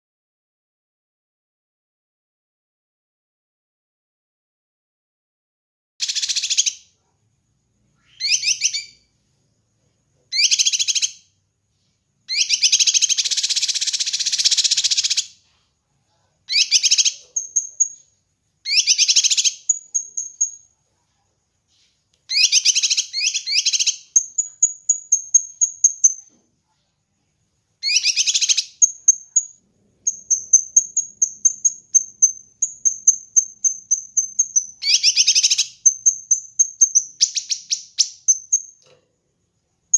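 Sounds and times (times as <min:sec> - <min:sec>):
high bird twitter: 0:06.0 - 0:06.9, 0:07.9 - 0:09.1, 0:10.3 - 0:11.3, 0:12.3 - 0:15.4, 0:16.5 - 0:20.7, 0:22.3 - 0:26.4, 0:27.8 - 0:38.9
bird buzzy trilling: 0:27.8 - 0:38.7.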